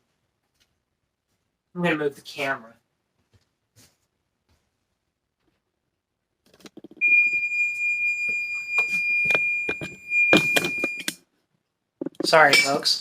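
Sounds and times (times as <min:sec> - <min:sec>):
kitchen timer beep: 0:07.0 - 0:11.2
handling knocks and clatter: 0:12.0 - 0:13.0.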